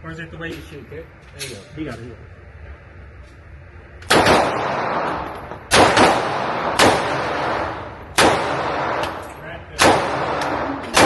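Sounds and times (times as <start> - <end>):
gunshots with long echo: 4.1 - 9.2, 9.8 - 11.0.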